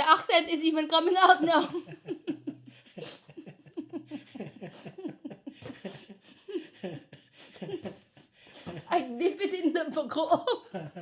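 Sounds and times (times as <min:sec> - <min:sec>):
people talking: 0:00.0 - 0:02.0, 0:08.7 - 0:10.8.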